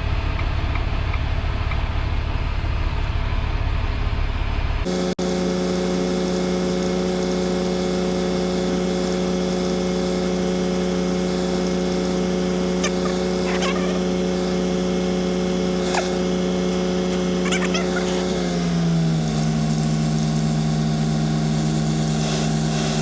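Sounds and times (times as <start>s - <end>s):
truck engine humming: 11.6s - 23.0s
faint chirps: 12.8s - 14.1s.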